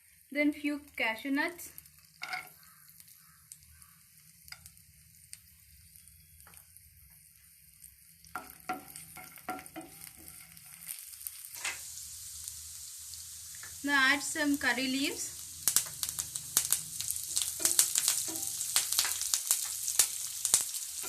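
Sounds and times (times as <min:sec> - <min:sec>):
garlic sizzling in hot oil: 0:00.0 - 0:21.0.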